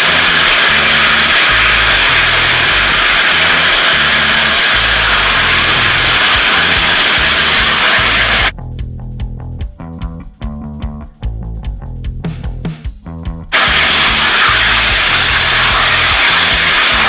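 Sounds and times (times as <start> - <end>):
rocket engine roaring: 0.0 - 8.5, 13.6 - 17.0.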